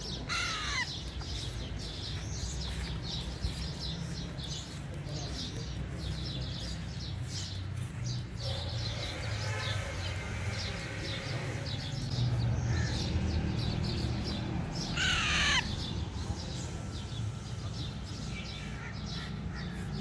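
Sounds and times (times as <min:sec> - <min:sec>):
birds chirping: 0:00.0 - 0:20.0
harsh bird call: 0:14.8 - 0:15.9.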